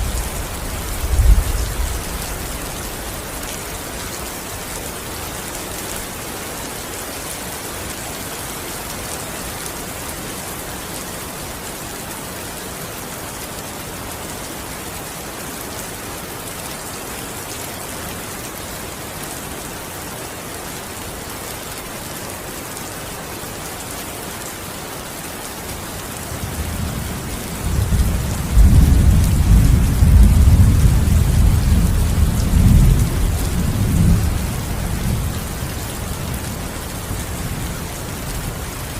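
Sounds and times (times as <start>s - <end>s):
low rumble of thunder: 0.0s - 2.5s, 26.6s - 35.5s
heavy rain falling: 0.0s - 38.9s.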